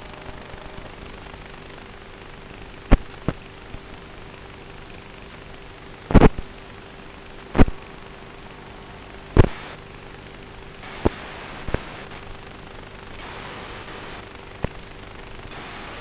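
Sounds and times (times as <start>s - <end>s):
faint hum: 0.0s - 16.0s
static hiss: 0.0s - 16.0s
crackling pops: 1.2s - 4.5s, 6.1s - 6.6s, 7.4s - 8.0s, 9.3s - 10.1s, 10.8s - 16.0s.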